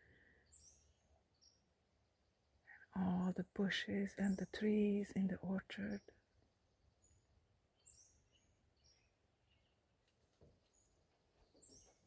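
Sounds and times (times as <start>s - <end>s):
faint high bird chirps: 10.6s - 12.0s.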